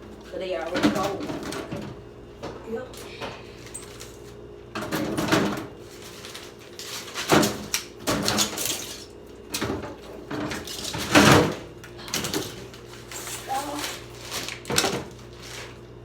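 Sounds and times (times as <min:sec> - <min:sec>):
plastic bottles rustling and knocking: 0:00.2 - 0:15.8.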